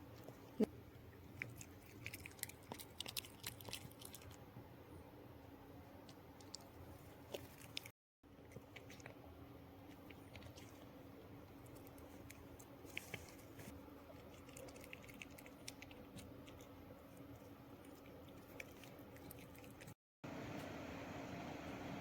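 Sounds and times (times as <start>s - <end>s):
dog chewing and crunching: 1.2s - 4.5s, 6.2s - 20.0s.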